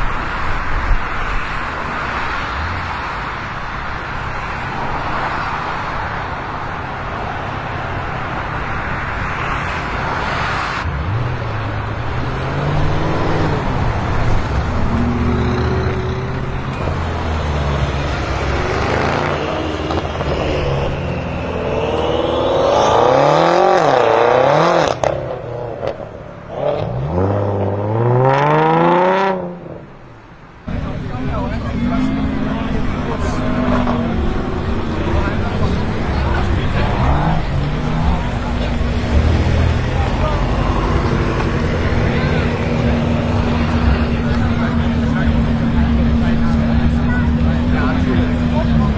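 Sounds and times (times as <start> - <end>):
steady rush of noise: 0.0 - 24.7, 30.0 - 48.9
car engine revving: 0.0 - 29.9, 30.6 - 48.9.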